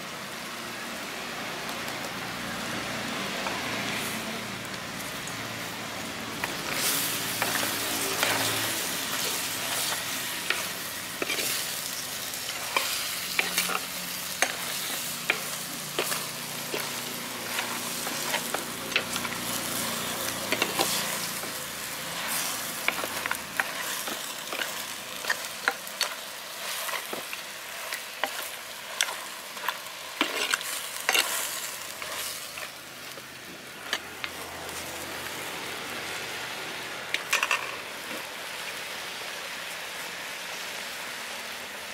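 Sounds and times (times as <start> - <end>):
meat sizzling in a pot: 0.0 - 41.9
steel ladle scraping a pot: 12.4 - 32.7.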